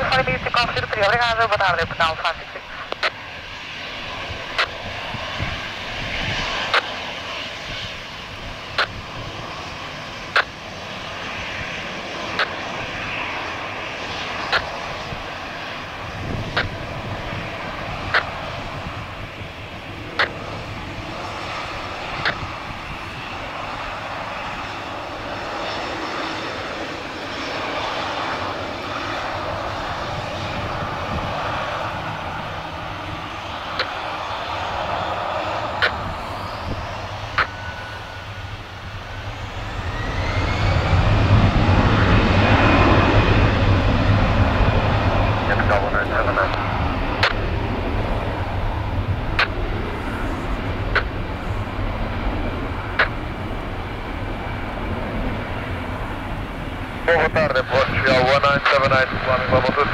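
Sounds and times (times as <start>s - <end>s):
jet engines at takeoff: 0.0s - 59.9s
sharp clicks: 35.8s - 36.0s, 47.2s - 47.4s.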